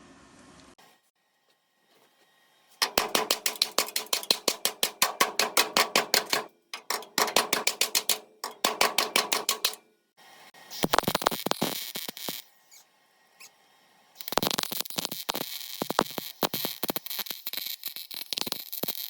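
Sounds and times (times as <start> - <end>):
welder popping: 2.8 - 9.8, 10.7 - 12.8, 14.2 - 19.0.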